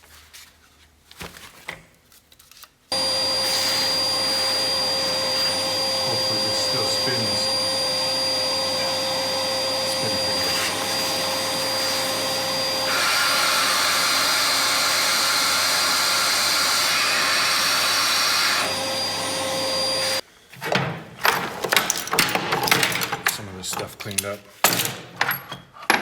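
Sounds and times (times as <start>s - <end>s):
shop vacuum whining: 2.9s - 20.2s.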